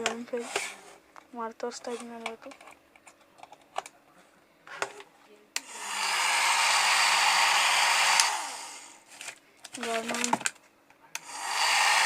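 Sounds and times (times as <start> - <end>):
hair dryer blowing: 5.6 - 9.0, 11.2 - 12.0
hair dryer switch click: 8.0 - 8.4.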